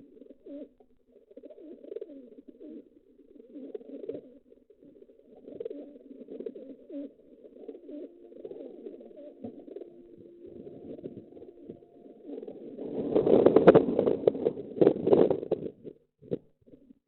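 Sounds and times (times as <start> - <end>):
pigeons cooing: 0.0 - 15.7.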